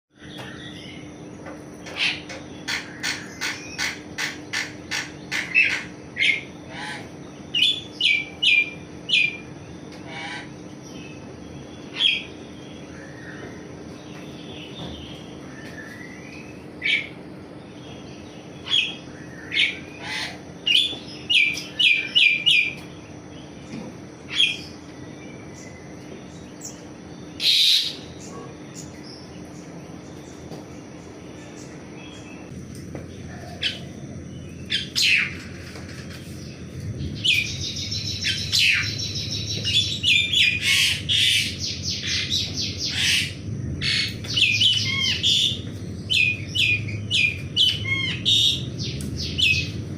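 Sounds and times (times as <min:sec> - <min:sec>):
faint steady hum: 0:00.1 - 0:49.9
starling whistled calls: 0:18.4 - 0:22.8, 0:24.3 - 0:25.8, 0:26.5 - 0:29.3, 0:37.1 - 0:49.8.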